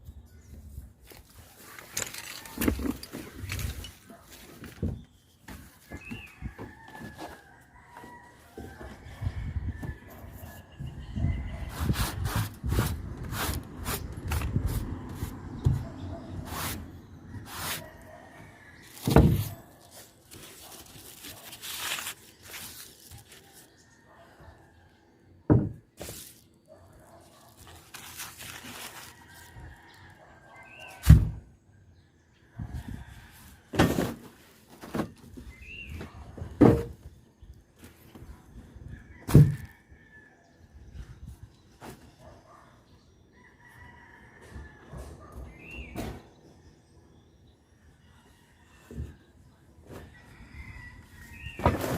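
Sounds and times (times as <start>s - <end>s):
irregular knocks and thuds: 25.5s - 25.8s.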